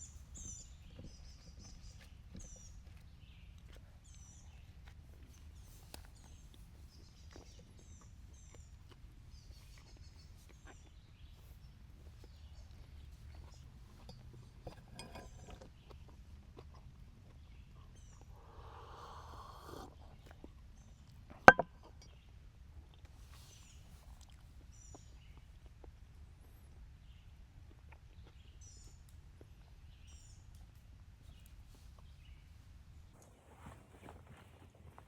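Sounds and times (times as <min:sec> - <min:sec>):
small bird chirping: 0:00.0 - 0:13.7.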